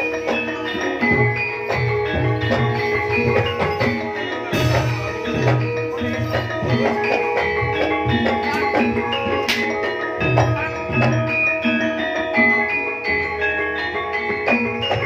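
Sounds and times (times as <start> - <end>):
drum beats: 0.0 - 15.0
metallophones and gongs ringing: 0.0 - 15.0.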